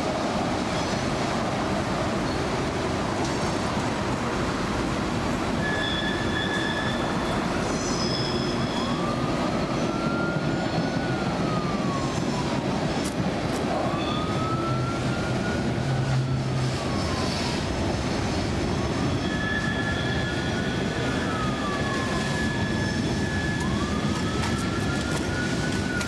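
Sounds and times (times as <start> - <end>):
freight train rumble: 0.0 - 26.0
wheel squeals: 5.6 - 9.1, 18.9 - 26.0.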